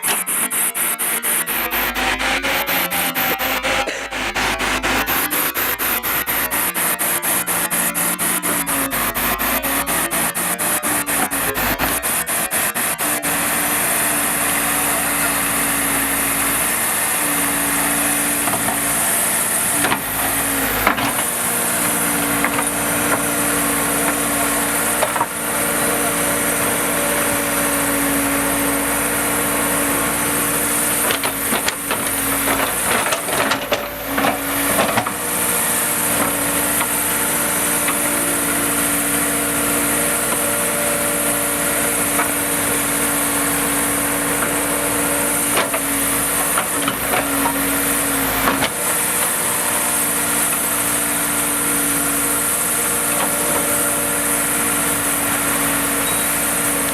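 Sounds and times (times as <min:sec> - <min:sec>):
heavy machine diesel engine running: 0:00.0 - 0:56.9.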